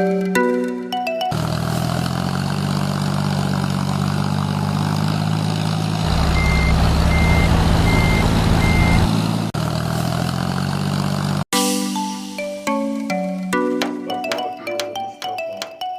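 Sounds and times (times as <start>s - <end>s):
heavy truck engine idling: 1.4s - 11.4s
reversing beeps: 6.1s - 9.2s.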